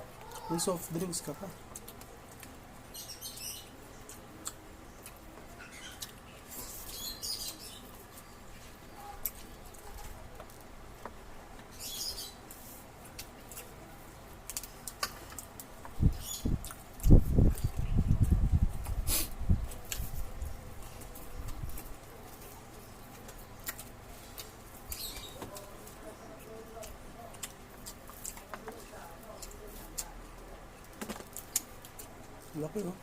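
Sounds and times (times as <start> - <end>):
chewing and mouth smacking: 1.7 - 2.6, 3.4 - 8.2, 14.4 - 19.0, 19.6 - 32.5.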